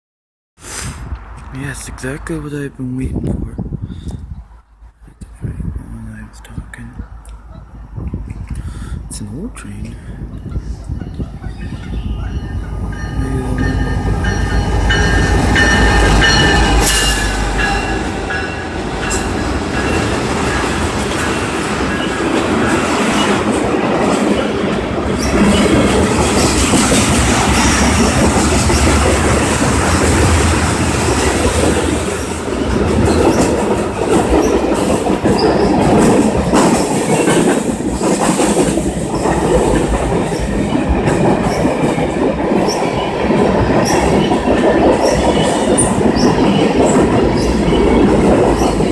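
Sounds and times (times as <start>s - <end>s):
freight train wheels clacking: 10.8s - 48.9s.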